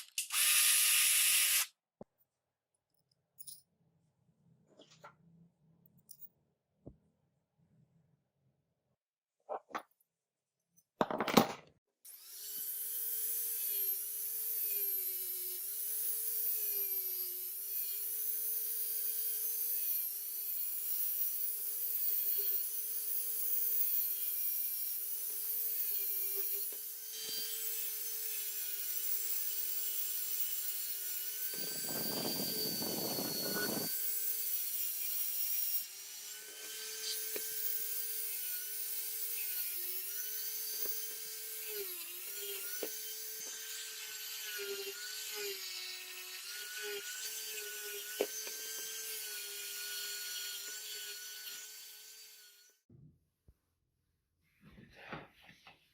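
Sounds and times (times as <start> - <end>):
rotary tool whining: 12.1 - 52.8.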